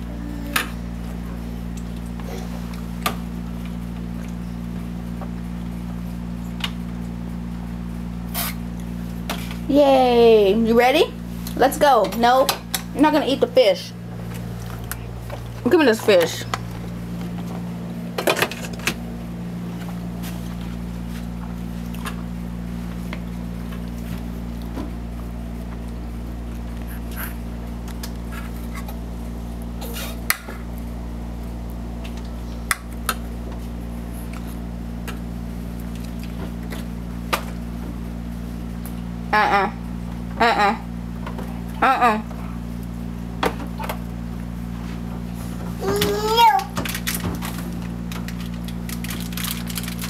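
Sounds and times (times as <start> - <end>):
refrigerator humming: 0.0 - 50.0.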